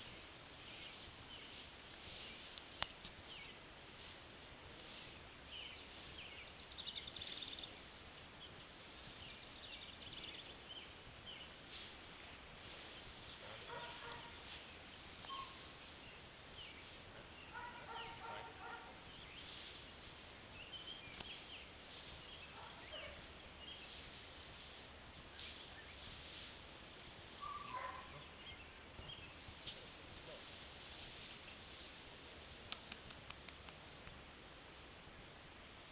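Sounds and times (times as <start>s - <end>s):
steady background hiss: 0.0s - 35.9s
birds chirping and trilling: 3.2s - 3.6s, 4.8s - 26.4s, 27.3s - 31.8s
low repeated bird calls: 12.8s - 24.0s.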